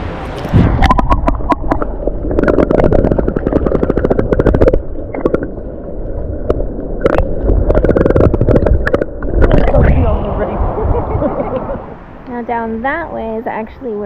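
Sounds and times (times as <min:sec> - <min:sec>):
seawater sloshing and gurgling: 0:00.0 - 0:11.5
bubbly clicks and pops: 0:00.4 - 0:09.9.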